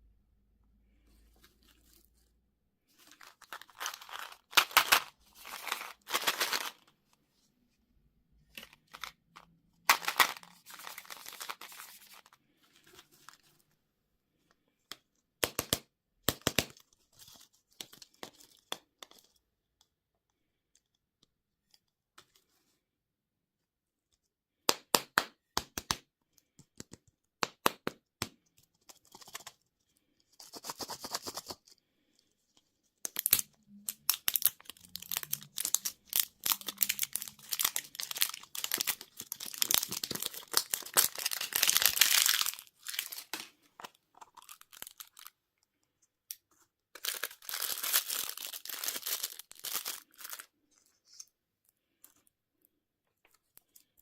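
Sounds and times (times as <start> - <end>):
candy wrappers crinkling: 2.9 - 7.0, 8.4 - 13.5, 33.0 - 45.4, 46.3 - 51.3.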